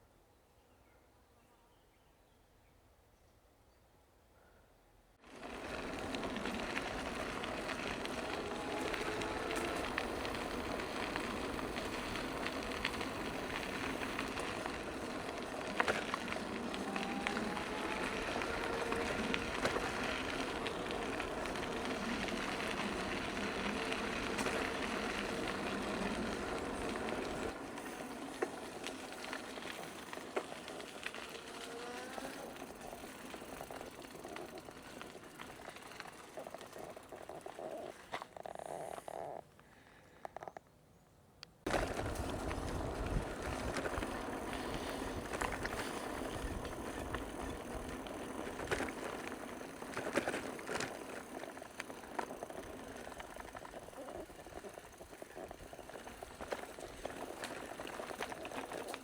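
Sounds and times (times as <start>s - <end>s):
bicycle tyres rolling: 5.2s - 40.5s, 41.6s - 59.0s
wind on microphone: 41.7s - 48.0s.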